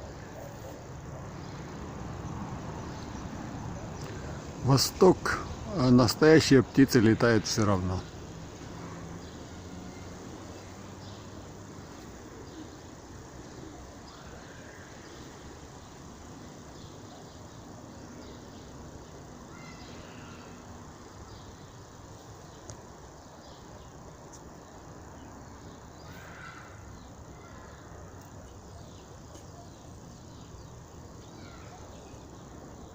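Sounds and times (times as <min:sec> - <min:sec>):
faint bird chirps: 0:19.4 - 0:32.9.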